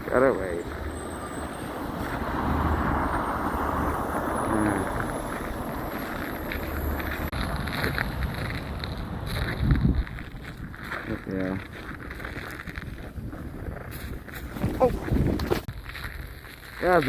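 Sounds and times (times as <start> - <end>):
car driving past: 0.5 - 7.3.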